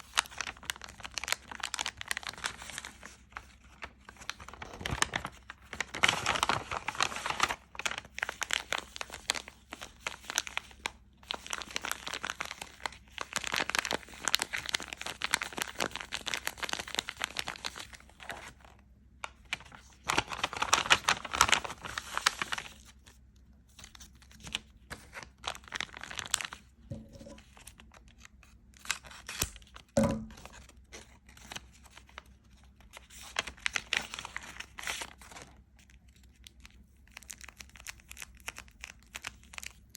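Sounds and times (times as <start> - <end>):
crinkling and crackling: 0.1 - 18.6, 19.4 - 39.9.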